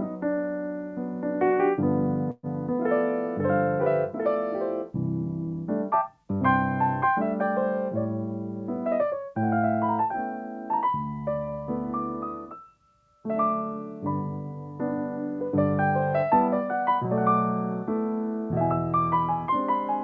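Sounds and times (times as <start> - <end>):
slow solo piano chords: 0.0 - 20.0.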